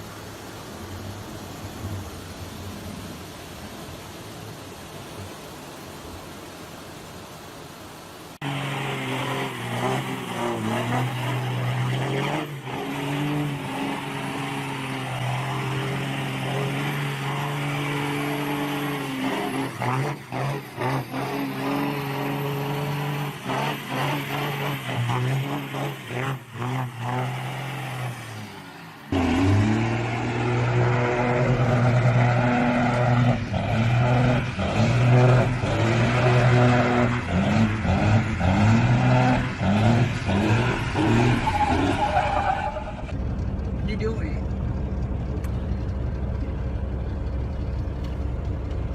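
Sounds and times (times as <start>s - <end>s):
engine revving: 8.4s - 44.4s
engine running with knocks: 43.1s - 48.9s.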